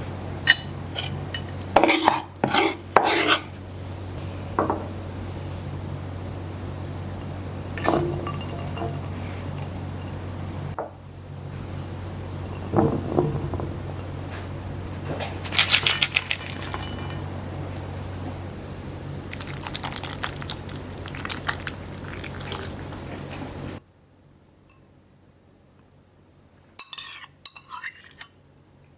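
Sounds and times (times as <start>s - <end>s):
steady low hum: 0.0s - 23.8s
dishes and glassware clinking: 7.8s - 9.2s, 19.3s - 23.6s
liquid sounds: 15.4s - 17.3s, 19.2s - 23.8s.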